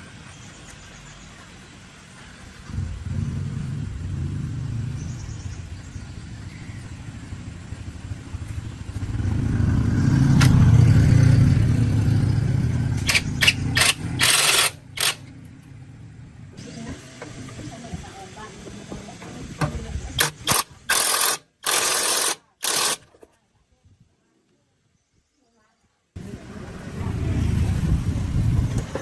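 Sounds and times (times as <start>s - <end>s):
machine rumbling: 1.3s - 23.0s
sharp noisy bursts: 13.0s - 15.3s, 20.2s - 23.1s.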